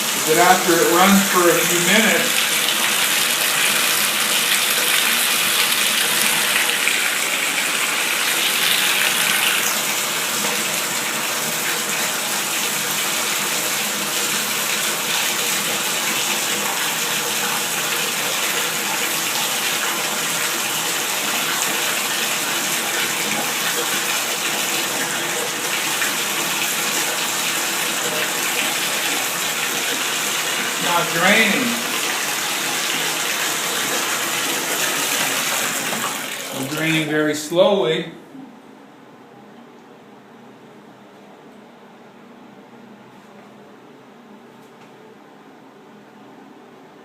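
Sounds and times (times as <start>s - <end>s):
tap water pouring into tub: 0.0s - 37.1s.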